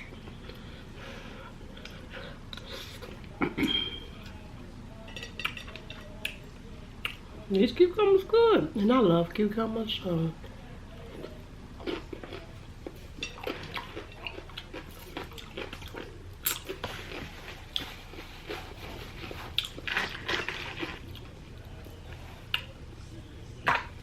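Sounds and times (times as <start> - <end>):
chewing crunchy cucumber: 11.0 - 21.4.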